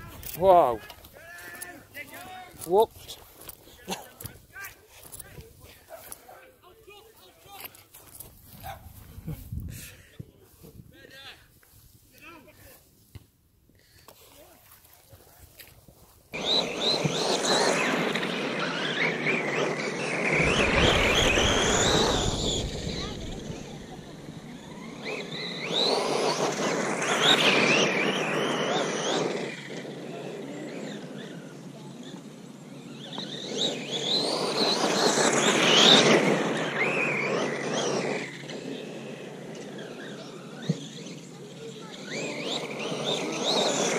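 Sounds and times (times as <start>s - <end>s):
tyres crunching on gravel: 0.0s - 6.3s
electric motor whining: 16.4s - 31.7s.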